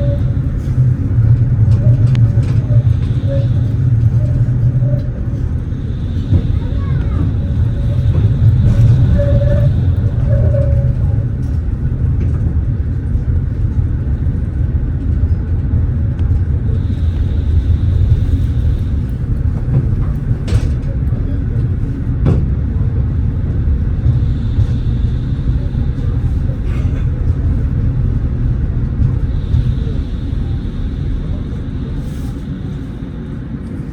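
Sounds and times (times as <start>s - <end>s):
tram wheels rumbling on rails: 0.0s - 33.9s.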